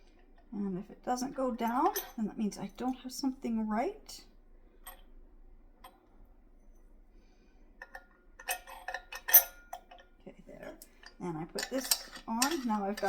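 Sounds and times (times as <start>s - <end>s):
metal parts clicking and clinking: 1.6s - 2.2s, 7.8s - 13.0s.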